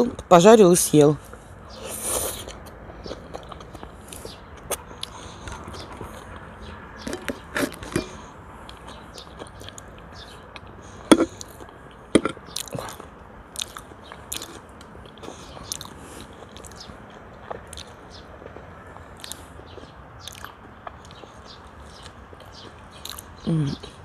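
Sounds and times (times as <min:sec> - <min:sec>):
chewing food: 0:01.2 - 0:24.0
sharp mouth clicks: 0:01.9 - 0:05.9, 0:07.0 - 0:16.9, 0:17.5 - 0:18.0, 0:19.2 - 0:24.0.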